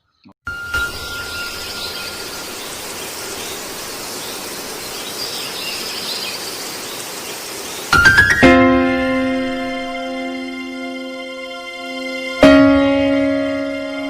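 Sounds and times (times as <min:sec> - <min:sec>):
faint bird chirps: 0:00.0 - 0:08.1
outdoor hiss: 0:00.5 - 0:10.8.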